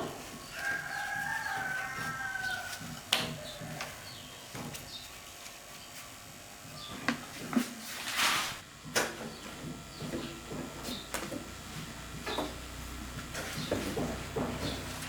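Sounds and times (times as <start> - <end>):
rooster crowing: 0.5 - 4.2.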